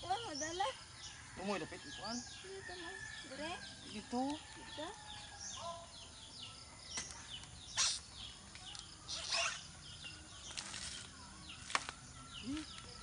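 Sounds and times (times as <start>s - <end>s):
small birds chirping: 0.0s - 13.0s
brief rustle: 10.5s - 12.0s.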